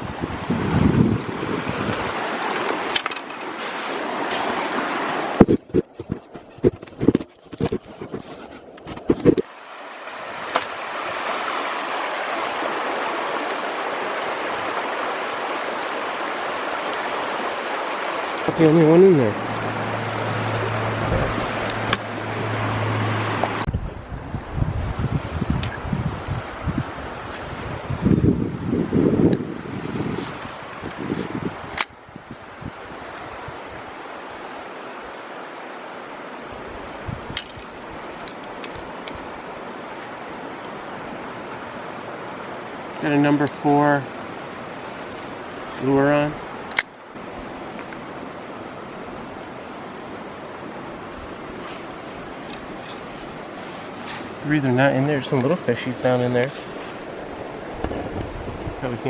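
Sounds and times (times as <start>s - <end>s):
brook rushing over rocks: 0.0s - 23.7s.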